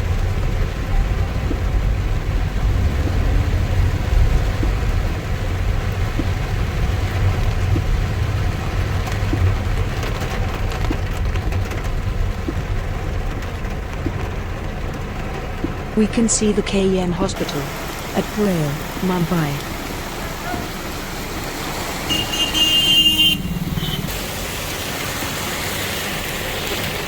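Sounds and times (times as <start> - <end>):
continuous low rumble: 0.0 - 21.2
heavy rain hissing: 15.8 - 27.0.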